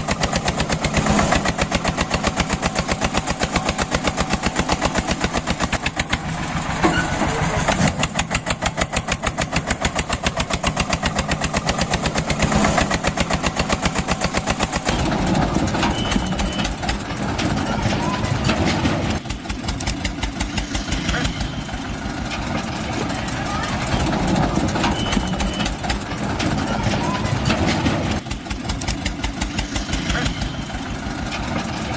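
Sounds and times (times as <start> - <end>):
tractor engine chugging: 0.0 - 31.9.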